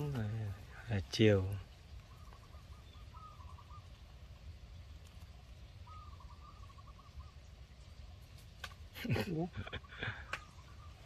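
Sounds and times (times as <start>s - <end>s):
faint bird call: 1.5s - 4.3s, 5.6s - 7.8s, 9.0s - 11.0s.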